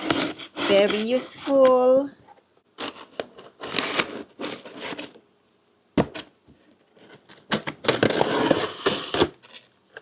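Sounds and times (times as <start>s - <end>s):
cardboard rustling and scraping: 0.0s - 1.7s, 2.8s - 5.2s, 6.1s - 9.7s.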